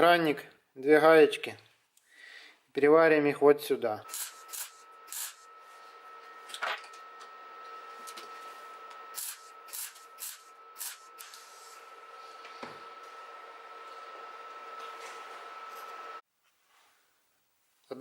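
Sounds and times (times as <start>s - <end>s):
welder whining: 3.8s - 16.2s
welding arc hissing bursts: 4.1s - 5.5s, 9.1s - 11.9s.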